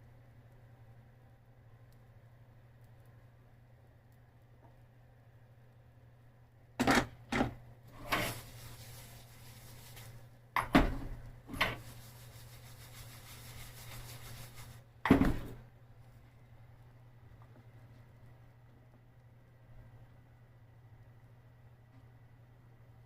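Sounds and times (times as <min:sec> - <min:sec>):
faint steady hum: 0:00.0 - 0:23.0
cookware knocking and scraping: 0:06.8 - 0:08.2.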